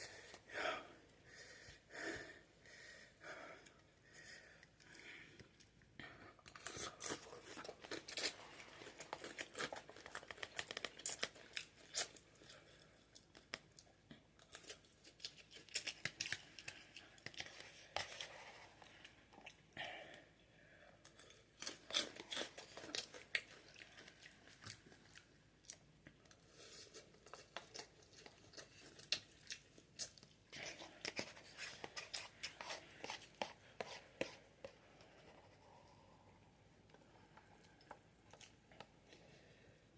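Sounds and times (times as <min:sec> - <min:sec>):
person chewing noodles: 0:06.4 - 0:19.8, 0:21.0 - 0:39.6.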